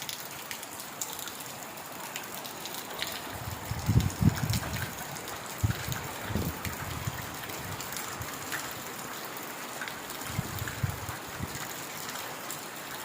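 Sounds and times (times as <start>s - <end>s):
heavy rain pattering: 0.0s - 13.0s.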